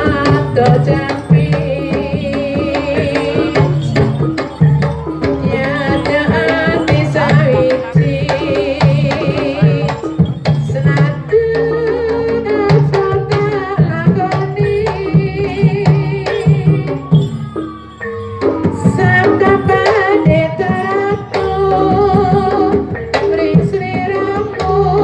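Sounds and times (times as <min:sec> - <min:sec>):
hand drums playing: 0:00.0 - 0:25.0
held melodic instrument tones: 0:00.0 - 0:25.0
person singing: 0:00.0 - 0:25.0.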